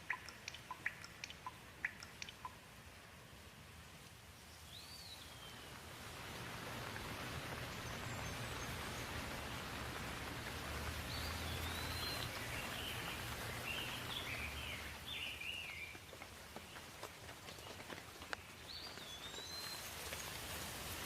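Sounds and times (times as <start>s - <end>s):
bird chirping: 0.0s - 2.7s, 4.3s - 5.8s, 7.0s - 9.8s, 10.8s - 20.4s
steady rain: 0.0s - 21.0s.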